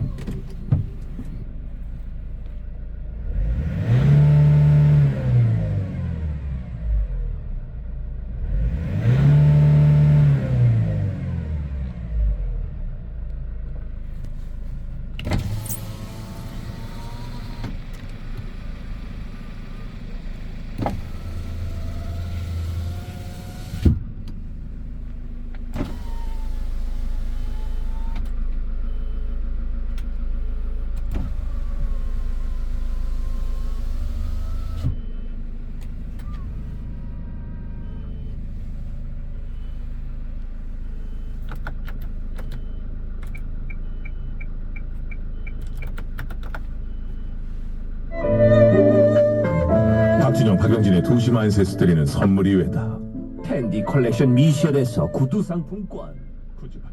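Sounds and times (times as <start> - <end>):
diesel engine idling: 15.8 - 41.5, 46.6 - 56.9.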